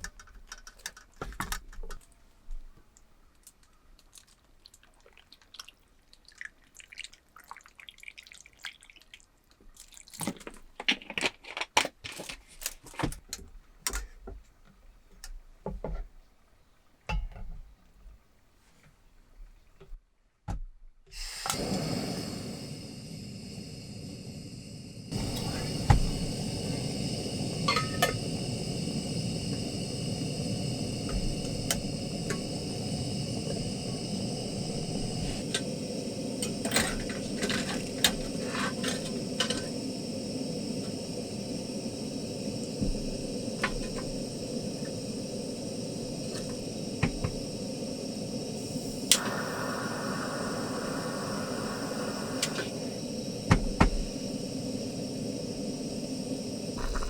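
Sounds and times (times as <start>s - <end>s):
steady hiss: 21.2s - 57.0s.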